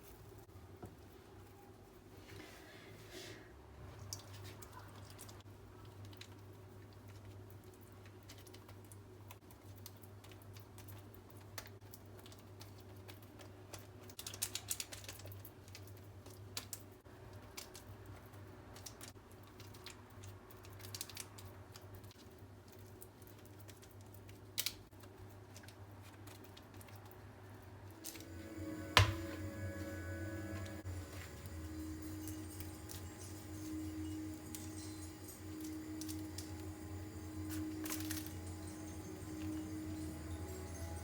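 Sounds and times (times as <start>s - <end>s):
steady low hum: 27.9s - 41.0s.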